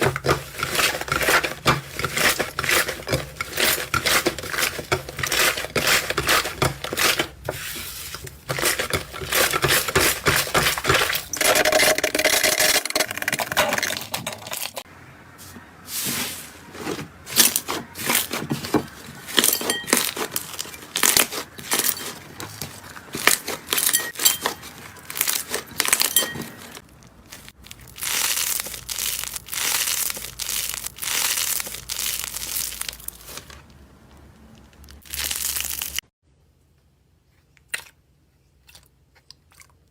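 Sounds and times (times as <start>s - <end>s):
slime crackling and popping: 25.0s - 26.2s, 26.8s - 33.6s, 34.6s - 36.0s.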